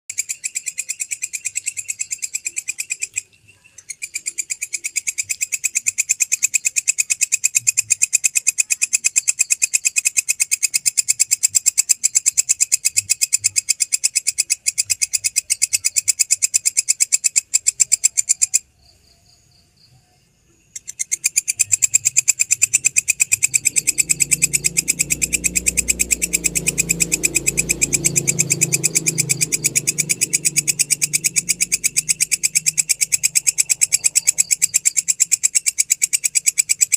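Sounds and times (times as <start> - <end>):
grasshopper stridulating: 0.1 - 36.9
low hum: 21.8 - 35.6.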